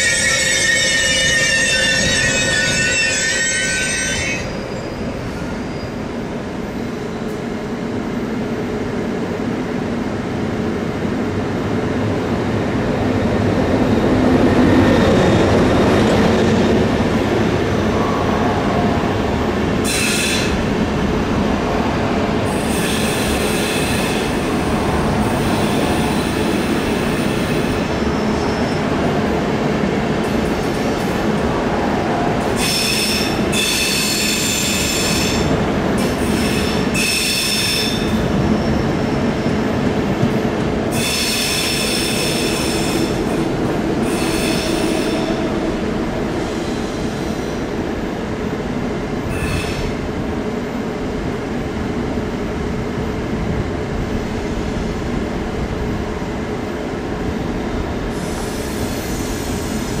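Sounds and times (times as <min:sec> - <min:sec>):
high-pitched wheel squeals: 0:00.0 - 0:06.0
train rumbling on tracks: 0:00.0 - 1:00.0.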